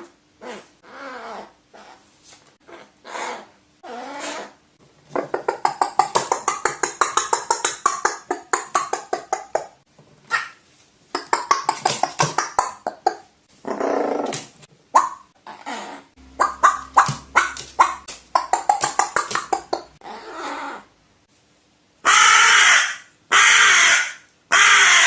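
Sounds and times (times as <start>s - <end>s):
crow calling: 16.2s - 19.2s, 22.1s - 25.0s
crow rapid clicking calls: 16.4s - 19.8s, 22.1s - 25.0s.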